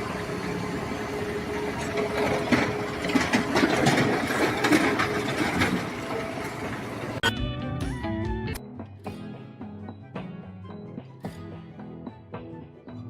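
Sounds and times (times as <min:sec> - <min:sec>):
machinery humming: 0:00.0 - 0:07.3
irregular clattering and knocking: 0:01.8 - 0:06.6.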